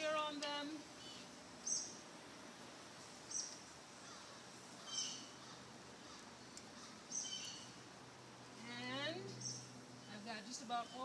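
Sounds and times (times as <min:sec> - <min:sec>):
faint background hiss: 0:00.0 - 0:11.0
bird chirping: 0:01.0 - 0:02.0, 0:03.3 - 0:07.8, 0:09.2 - 0:11.0.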